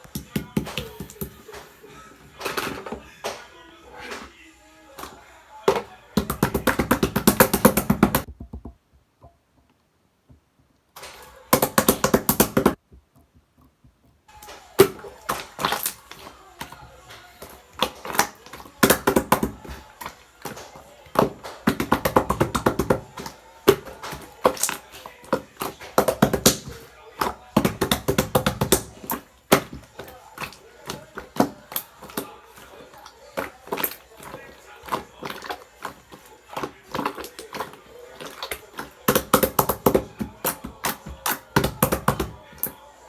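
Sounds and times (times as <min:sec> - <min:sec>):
slime squishing with wet pops: 0:05.0 - 0:08.3, 0:14.3 - 0:42.9.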